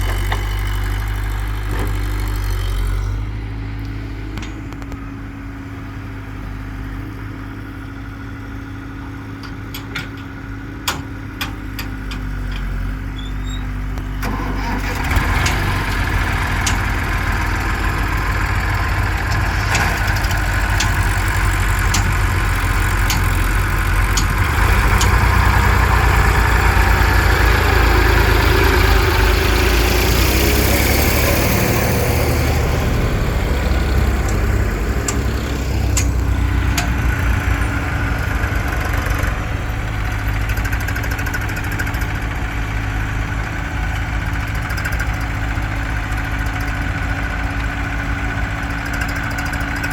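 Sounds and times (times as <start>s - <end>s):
diesel engine running: 0.0s - 49.9s
sharp clicks and knocks: 9.4s - 12.8s, 15.2s - 26.5s, 33.6s - 37.7s.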